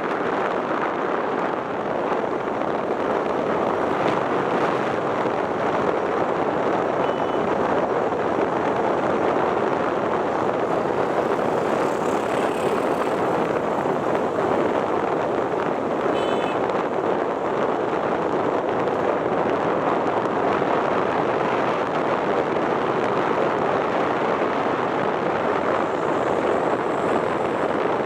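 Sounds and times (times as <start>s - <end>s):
boat engine and water roar: 0.0s - 28.0s
faint high tone: 7.0s - 7.5s.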